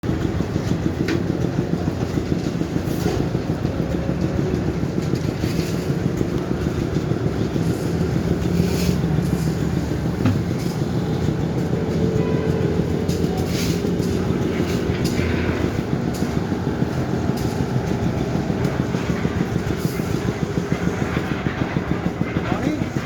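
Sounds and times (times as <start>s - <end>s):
diesel engine running under load: 0.0s - 23.0s.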